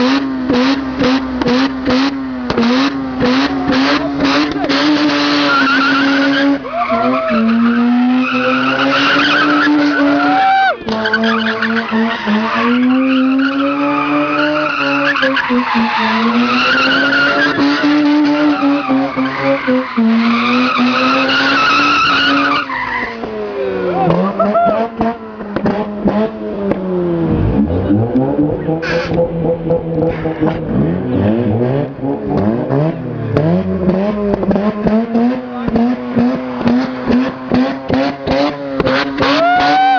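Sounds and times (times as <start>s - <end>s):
rotary engine revving high: 0.0s - 39.9s
tyres squealing: 3.2s - 25.0s.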